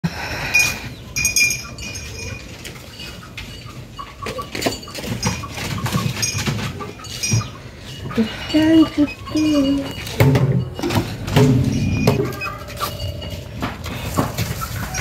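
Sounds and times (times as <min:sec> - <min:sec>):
knocks: 0:10.2 - 0:12.4.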